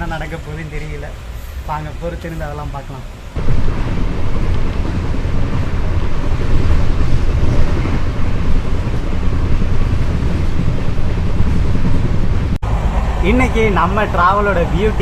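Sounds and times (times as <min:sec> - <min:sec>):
train coach rumbling: 0:00.0 - 0:15.0
wind buffeting microphone: 0:03.1 - 0:15.0.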